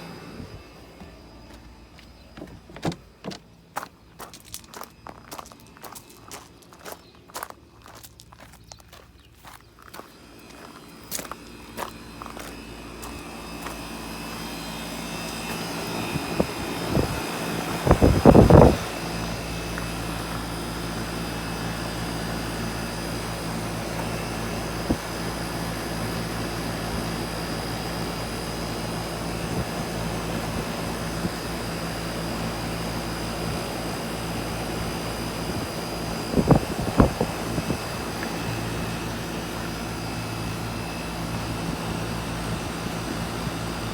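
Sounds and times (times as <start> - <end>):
condenser fan rushing: 0.0 - 7.9, 8.6 - 43.9
air conditioner compressor hum: 0.0 - 43.9.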